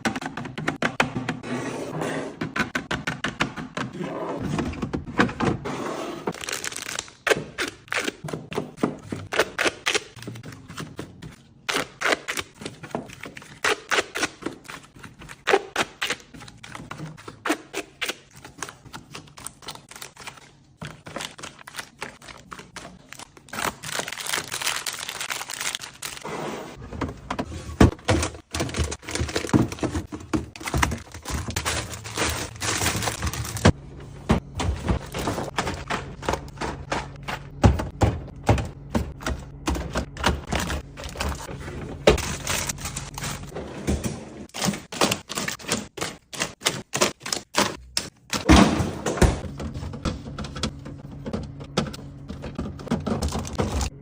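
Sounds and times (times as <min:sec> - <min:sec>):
containers and packaging clicking: 0:27.9 - 0:33.8, 0:44.5 - 0:48.5.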